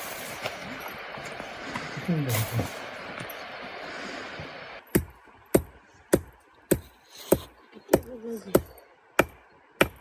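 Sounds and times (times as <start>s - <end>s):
steady hiss: 0.0s - 4.9s.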